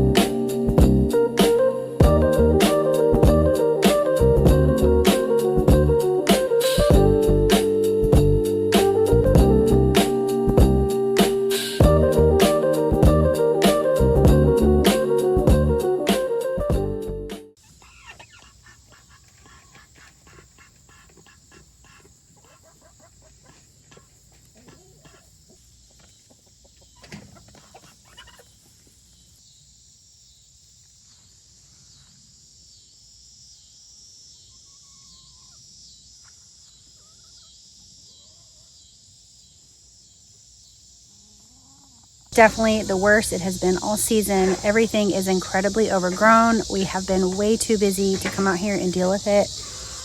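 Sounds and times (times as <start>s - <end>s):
chickens clucking: 17.6s - 29.0s, 41.1s - 50.0s
insects chirring: 17.6s - 50.0s.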